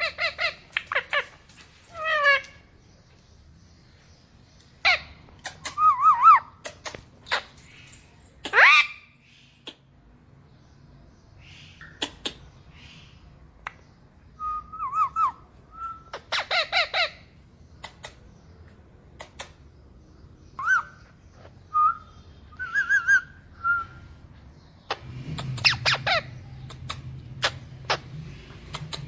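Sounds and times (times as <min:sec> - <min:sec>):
parakeet whistles and warbles: 0:04.8 - 0:06.5, 0:14.4 - 0:17.3, 0:20.6 - 0:24.2, 0:24.9 - 0:28.2
parakeet harsh chirps: 0:08.5 - 0:09.5, 0:16.0 - 0:17.3, 0:24.8 - 0:28.2.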